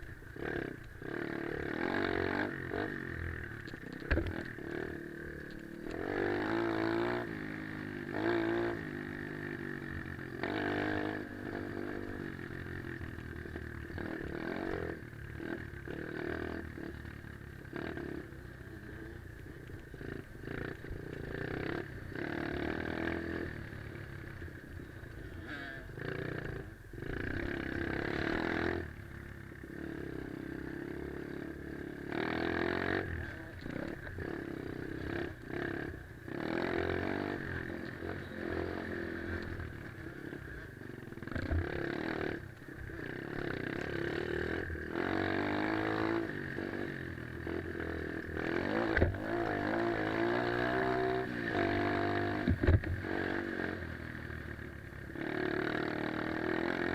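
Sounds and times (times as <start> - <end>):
pit bike engine revving: 0.0 - 56.9.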